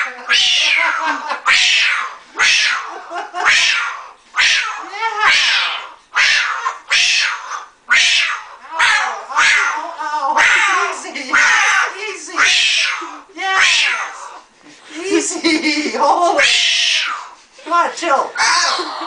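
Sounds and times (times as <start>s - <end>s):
cockatoo screeching: 0.2s - 9.8s, 10.4s - 14.4s, 16.4s - 17.4s, 18.4s - 19.0s.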